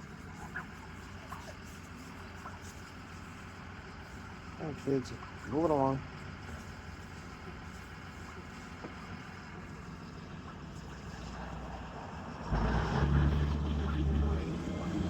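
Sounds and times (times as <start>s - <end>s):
low street background: 0.0s - 15.0s
vehicle engine driving by: 9.1s - 15.0s.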